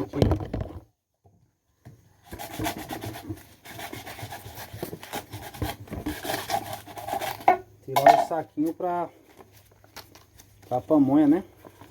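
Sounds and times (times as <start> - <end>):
corn husks rustling and tearing: 8.6 - 11.9.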